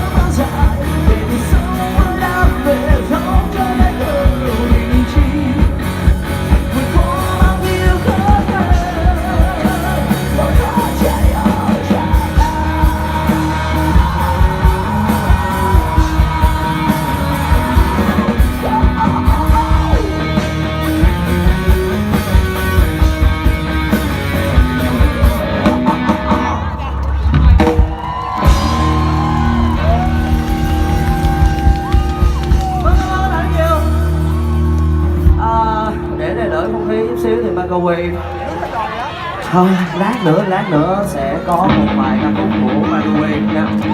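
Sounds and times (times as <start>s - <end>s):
person singing: 0.0s - 21.2s, 35.2s - 38.2s, 39.5s - 43.9s
drums beating: 0.0s - 35.7s
rock band playing: 0.0s - 43.9s.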